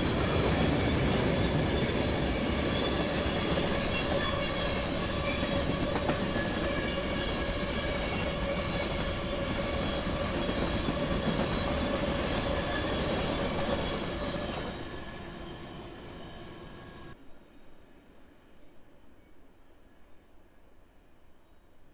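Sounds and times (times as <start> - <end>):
freight train rumbling past: 0.0 - 17.2.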